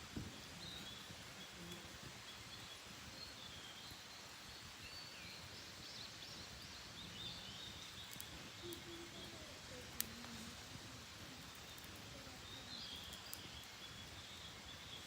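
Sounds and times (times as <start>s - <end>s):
low outdoor hush: 0.0s - 15.0s
wild birdsong chirps: 0.0s - 15.0s
faint clicks: 7.8s - 10.6s, 11.3s - 13.8s.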